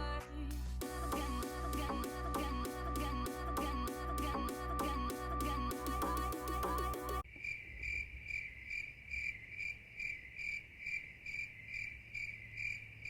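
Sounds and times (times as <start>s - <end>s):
background music: 0.0s - 7.2s
insect chirping: 7.2s - 13.0s.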